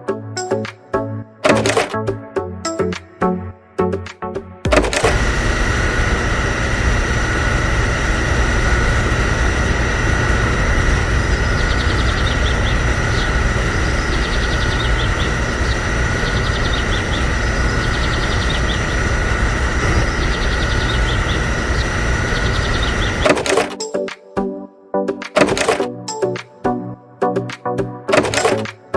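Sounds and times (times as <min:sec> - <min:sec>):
small motor whining: 0:04.7 - 0:23.8.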